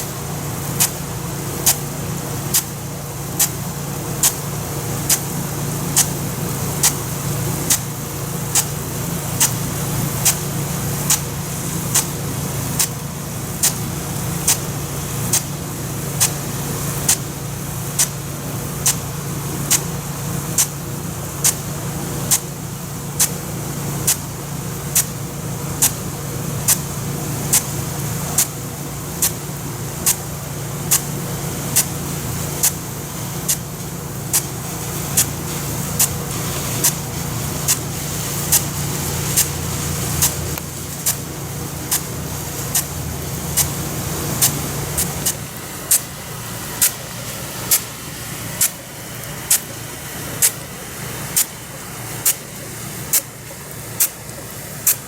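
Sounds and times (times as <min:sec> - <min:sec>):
sprinkler water jet hissing: 0:00.0 - 0:55.0.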